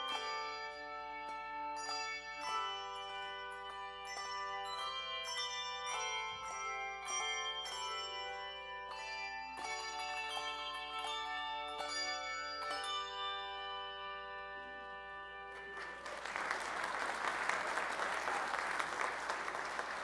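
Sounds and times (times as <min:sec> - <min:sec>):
bells ringing: 0:00.0 - 0:20.0
congregation applauding: 0:15.5 - 0:20.0.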